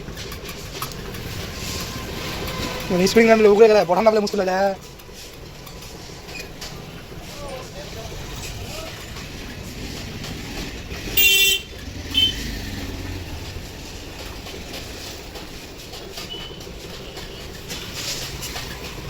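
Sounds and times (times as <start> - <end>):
low traffic noise: 0.0 - 19.0
vehicle horn honking: 11.1 - 12.6.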